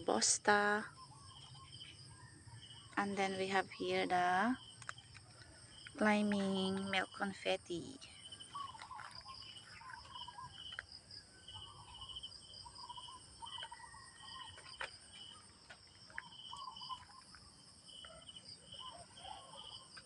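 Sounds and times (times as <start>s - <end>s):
insect high-pitched trill: 0.0s - 20.0s
insect short chirps: 8.1s - 19.9s
lower warbling calls: 8.4s - 10.8s.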